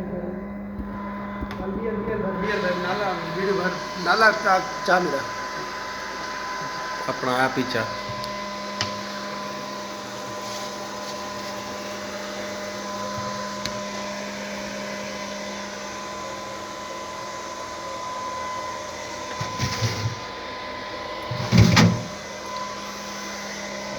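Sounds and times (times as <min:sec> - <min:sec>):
refrigerator humming: 0:18.3 - 0:23.1.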